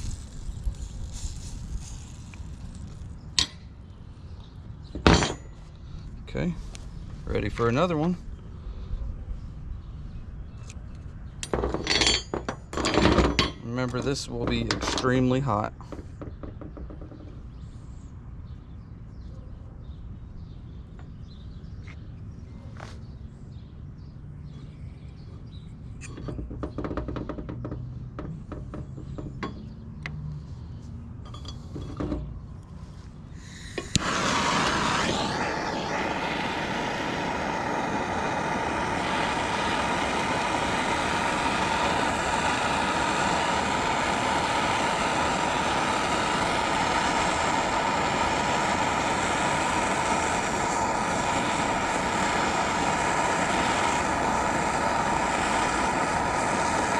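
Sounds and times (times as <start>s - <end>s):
torch hissing and whistling: 0.0s - 8.1s, 13.7s - 15.8s, 33.3s - 56.9s.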